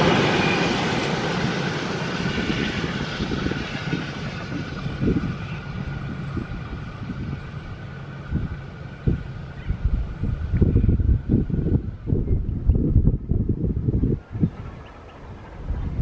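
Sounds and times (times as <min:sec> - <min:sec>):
passenger train rolling past: 0:00.0 - 0:16.0.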